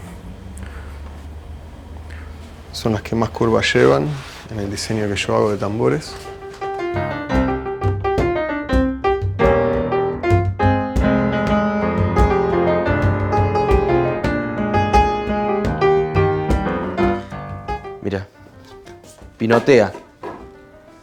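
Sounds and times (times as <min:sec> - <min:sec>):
piano music: 0:05.7 - 0:21.0.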